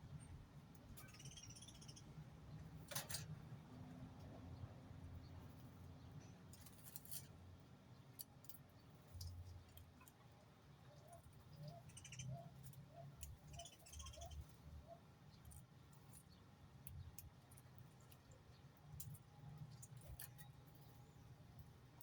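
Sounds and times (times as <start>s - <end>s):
soft bird clicks: 11.0s - 14.5s, 15.4s - 21.0s.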